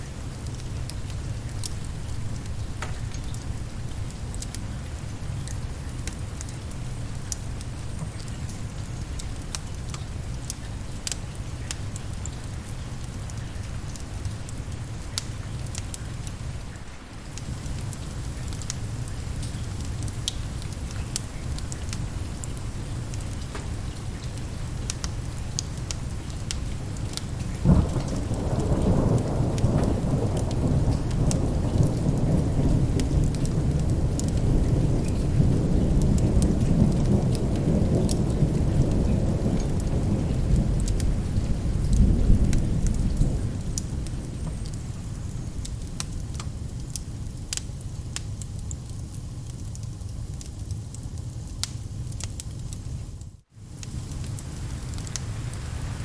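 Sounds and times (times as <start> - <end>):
steady rain: 0.0 - 56.0
wood fire crackling: 0.0 - 56.0
thunderclap: 27.2 - 45.2.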